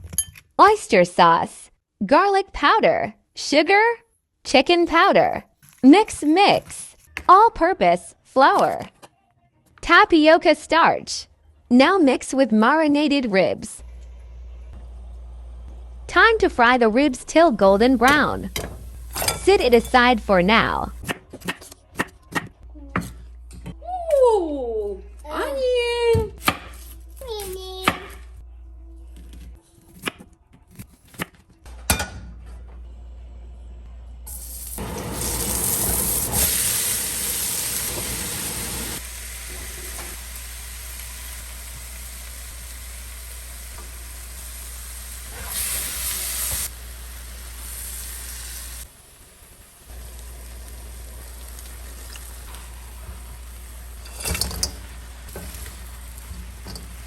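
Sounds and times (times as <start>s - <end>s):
food sizzling in a pan: 34.3s - 57.0s.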